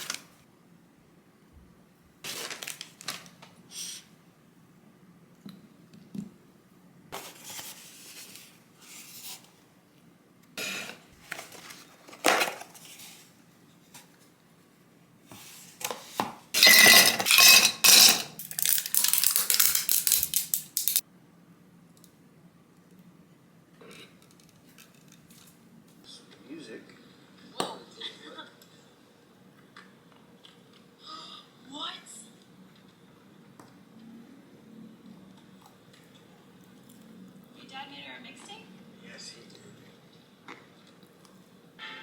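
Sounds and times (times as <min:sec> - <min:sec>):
dishes and utensils clinking: 0:16.6 - 0:18.8
quick clinking and scraping: 0:16.6 - 0:21.0.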